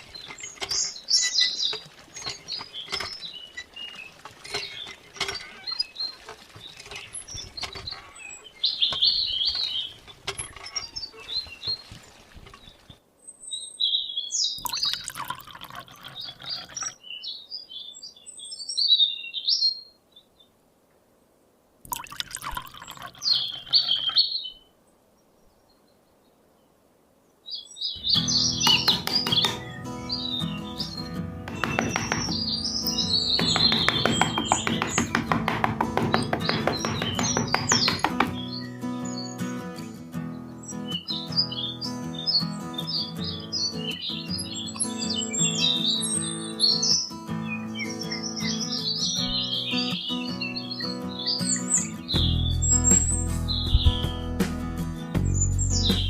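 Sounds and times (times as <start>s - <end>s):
small birds chirping: 0.0s - 20.6s, 21.9s - 56.0s.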